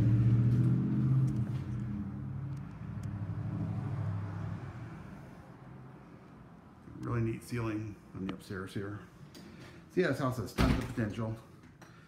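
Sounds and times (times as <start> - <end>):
vehicle engine running: 0.0 - 3.6.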